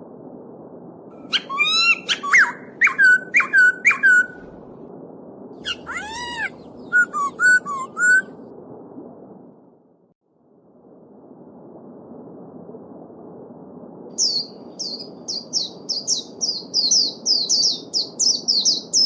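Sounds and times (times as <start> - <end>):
songbird whistling: 1.2 - 4.5, 5.6 - 8.3, 14.2 - 19.0.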